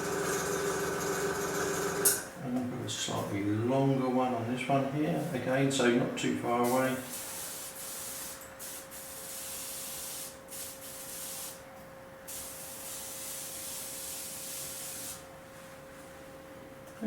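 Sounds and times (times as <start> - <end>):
airbrush spraying hiss: 6.7 - 11.6, 12.3 - 15.2.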